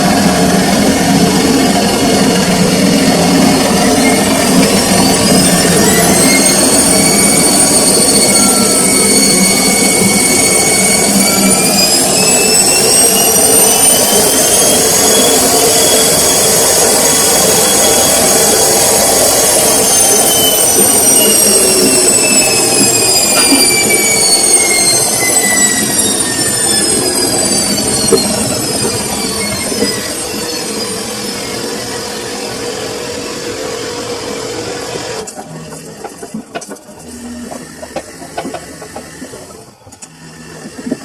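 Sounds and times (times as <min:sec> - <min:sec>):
washing machine motor whining: 0:00.0 - 0:41.0.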